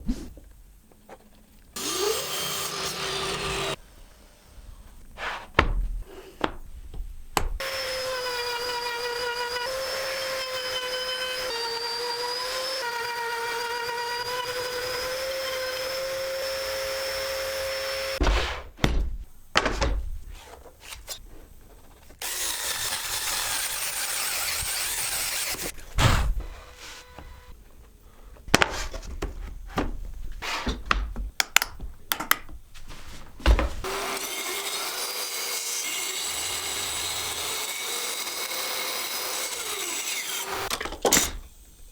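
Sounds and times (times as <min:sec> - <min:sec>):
woodworking power tool whining: 0:01.8 - 0:04.6, 0:07.6 - 0:18.2, 0:22.2 - 0:27.6, 0:33.8 - 0:40.8.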